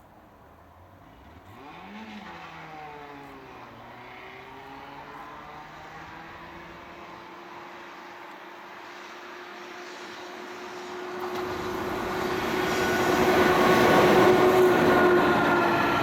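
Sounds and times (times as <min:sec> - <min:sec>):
locomotive motor whine: 0:10.0 - 0:16.0
train rumble: 0:10.8 - 0:16.0.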